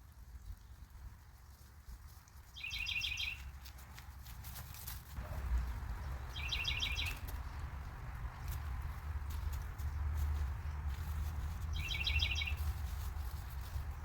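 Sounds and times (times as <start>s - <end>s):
wind buffeting microphone: 5.2s - 14.0s
bird chattering calls: 6.3s - 7.2s, 11.8s - 12.6s.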